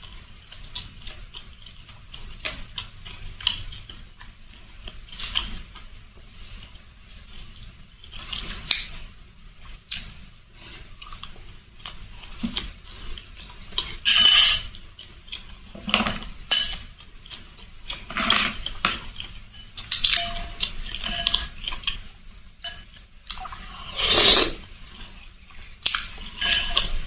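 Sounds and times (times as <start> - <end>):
cutlery clinking against a bowl: 13.6 - 23.0, 25.9 - 27.0.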